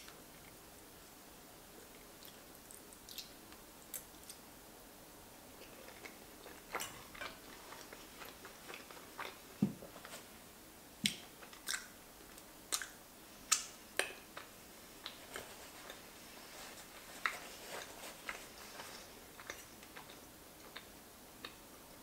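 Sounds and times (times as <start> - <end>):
person chewing pasta: 1.9 - 4.4, 5.5 - 10.3, 11.0 - 21.6
mouth clicks and smacks: 11.0 - 15.2.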